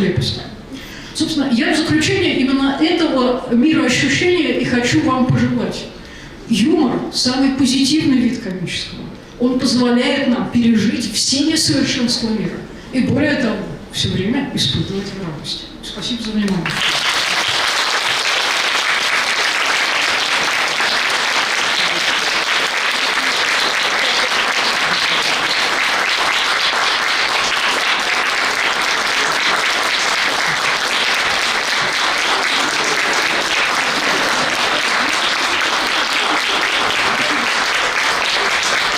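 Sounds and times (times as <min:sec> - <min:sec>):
audience applauding: 0:16.6 - 0:38.9.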